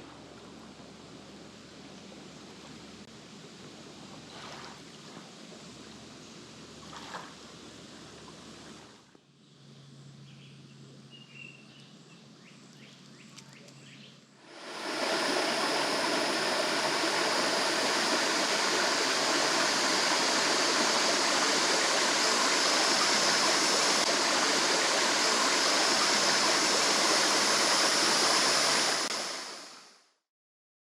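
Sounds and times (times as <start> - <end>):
faint bird chirp: 9.4 - 14.3
rush of flowing water: 14.4 - 29.9.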